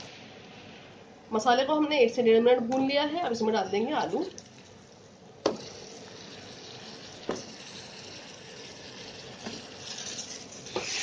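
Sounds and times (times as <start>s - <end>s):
oil sizzling: 2.7s - 11.0s.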